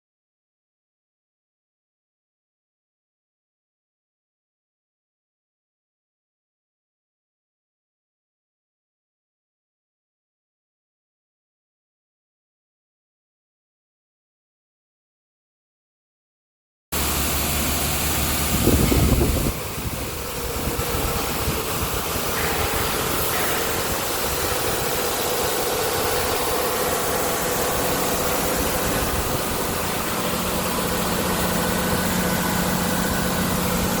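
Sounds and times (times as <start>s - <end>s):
low engine burst: 17.0s - 34.0s
vehicle engine idling: 17.0s - 34.0s.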